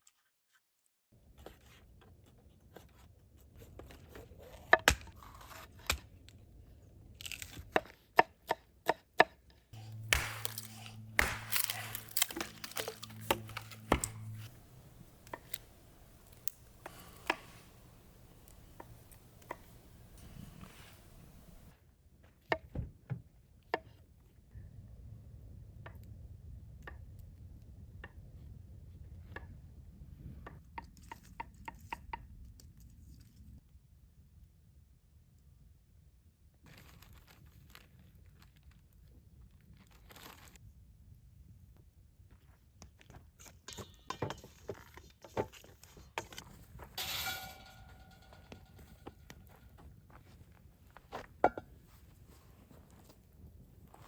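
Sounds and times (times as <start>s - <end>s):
cooking gear knocking and clinking: 9.8s - 21.7s, 47.0s - 49.4s
knife chopping on cutting board: 9.8s - 21.7s
rustling: 9.8s - 21.7s.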